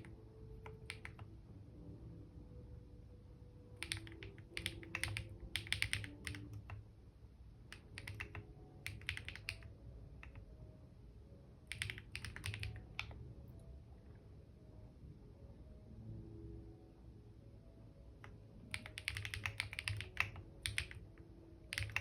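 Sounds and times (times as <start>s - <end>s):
typing on keyboard: 0.0s - 1.3s, 3.8s - 6.8s, 7.7s - 10.5s, 11.7s - 13.2s, 18.2s - 22.0s.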